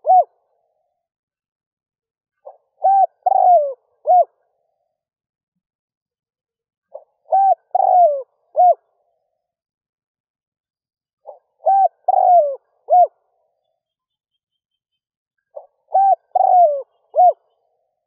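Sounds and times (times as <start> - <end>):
dove cooing: 0.0 - 0.4, 2.4 - 4.4, 6.9 - 8.9, 11.2 - 13.2, 15.6 - 17.7.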